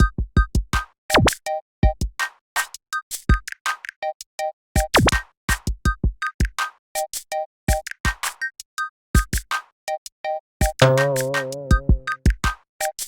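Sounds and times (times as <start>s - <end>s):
electronic music with drum-machine beat: 0.0s - 4.2s, 4.8s - 8.6s, 9.2s - 10.0s, 10.6s - 13.0s.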